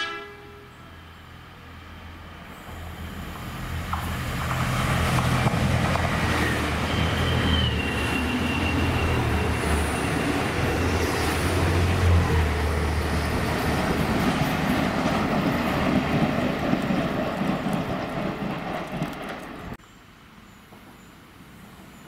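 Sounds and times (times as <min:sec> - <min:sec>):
train engine rumble: 0:00.0 - 0:22.0
train wheels rolling: 0:02.6 - 0:19.8.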